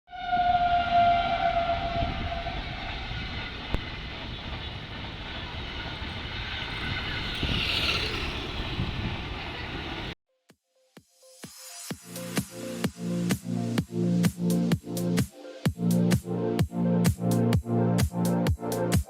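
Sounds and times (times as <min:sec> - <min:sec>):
train horn: 0:00.1 - 0:07.8
passing train rumble: 0:00.1 - 0:10.2.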